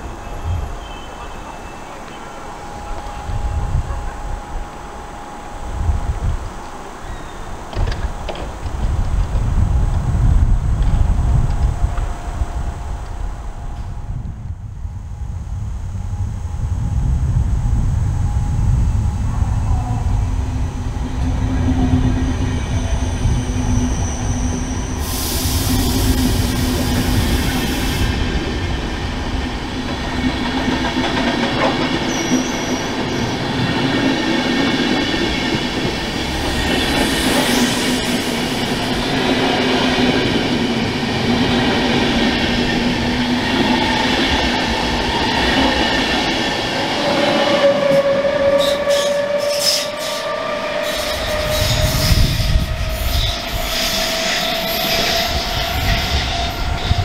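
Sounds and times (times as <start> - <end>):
train wheels rumbling on rails: 0.0 - 57.0
metallic wheel squeals: 22.2 - 25.9.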